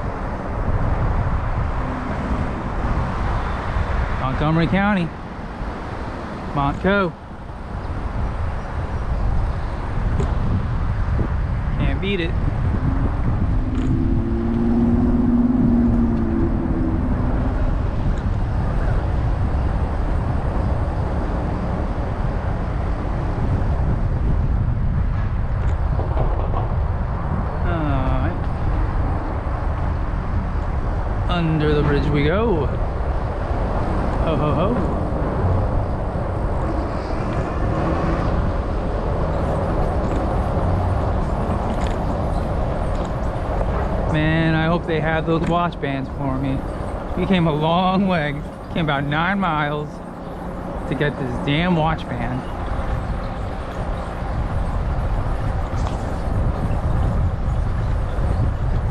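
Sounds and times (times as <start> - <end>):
road rumble: 0.0 - 58.9
wind noise on microphone: 0.0 - 58.9
steady hum: 6.6 - 25.4.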